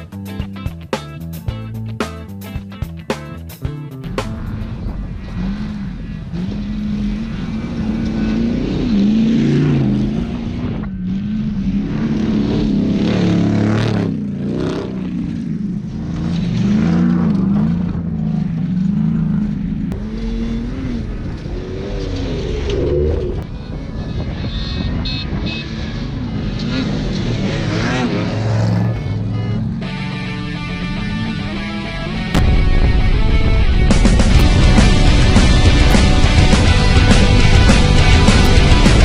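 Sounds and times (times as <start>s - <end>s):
engine revving: 3.6s - 39.0s
steady rushing noise: 3.8s - 16.2s, 29.8s - 39.0s.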